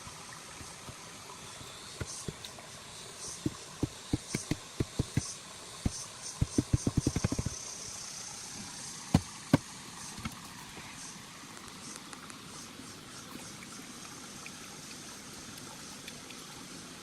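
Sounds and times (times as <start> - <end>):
faint steady hiss: 0.0 - 17.0
dull knocks or thuds: 3.4 - 5.3, 5.9 - 7.6.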